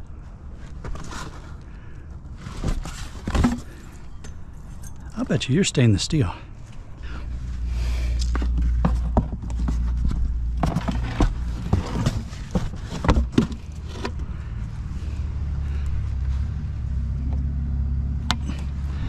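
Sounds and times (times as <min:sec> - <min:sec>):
scrap metal clinking: 0:02.8 - 0:05.1
truck engine idling: 0:13.6 - 0:19.0.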